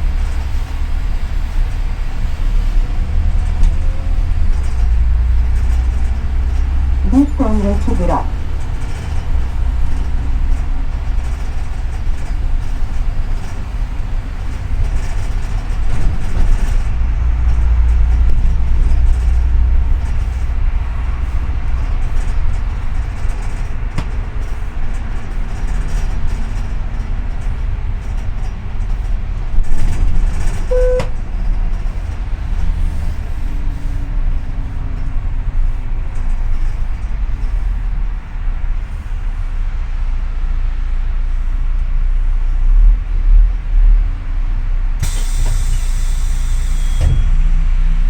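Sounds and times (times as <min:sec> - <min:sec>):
bus engine and road rumble: 0:00.0 - 0:48.0
short beep: 0:30.7 - 0:31.2.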